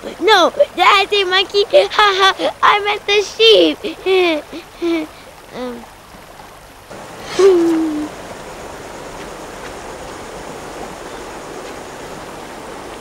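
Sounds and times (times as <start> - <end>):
stream water rushing: 0.0 - 13.0
person humming: 7.2 - 8.2.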